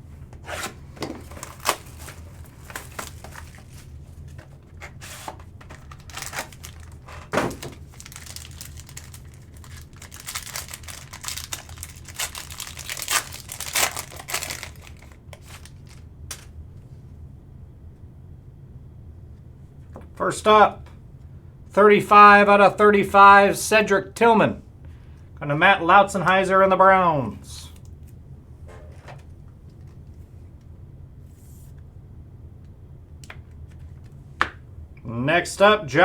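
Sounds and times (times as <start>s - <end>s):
cards and cardboard handled: 0.3s - 16.5s
plastic wrap tearing and crinkling: 0.5s - 16.5s.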